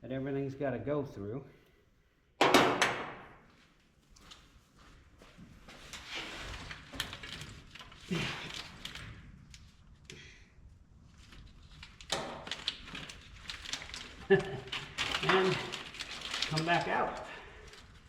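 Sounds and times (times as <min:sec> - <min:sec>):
wiring rustling and scraping: 0:05.6 - 0:10.1, 0:10.7 - 0:18.0.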